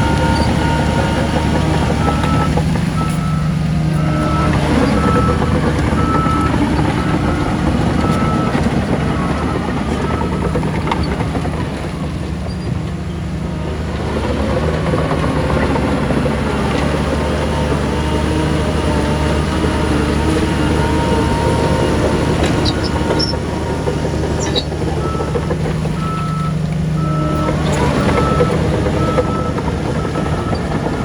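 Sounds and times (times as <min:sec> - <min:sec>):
reversing alarm beeping: 0:00.0 - 0:11.6, 0:18.0 - 0:31.0
diesel earthmoving machinery: 0:00.0 - 0:31.0.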